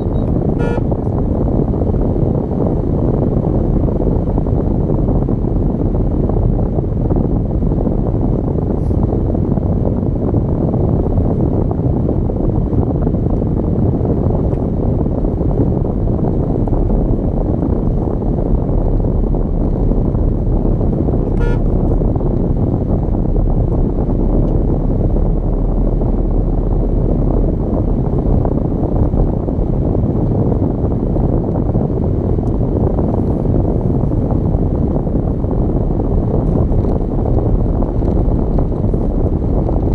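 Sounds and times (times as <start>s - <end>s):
vehicle horn toot: 0.0s - 1.0s, 21.3s - 21.9s
car driving on road: 0.0s - 39.9s.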